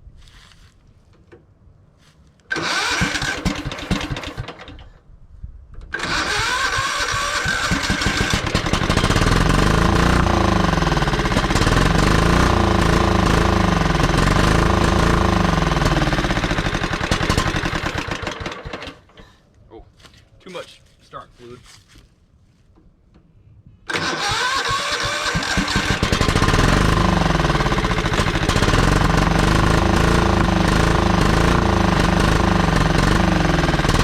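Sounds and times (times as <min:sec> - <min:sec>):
engine cranking: 0:02.5 - 0:05.0, 0:05.9 - 0:19.4, 0:23.9 - 0:34.0
lawn tractor engine running: 0:02.5 - 0:05.0, 0:05.9 - 0:19.3, 0:23.9 - 0:34.0.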